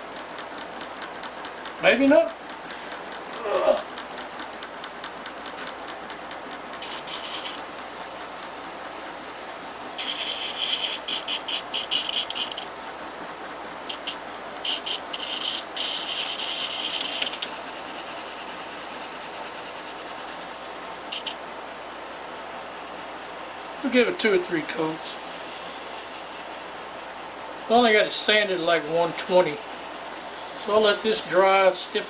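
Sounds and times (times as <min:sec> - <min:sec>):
aerosol spray hissing: 0:06.8 - 0:32.0
aerosol can rattling: 0:13.8 - 0:20.2.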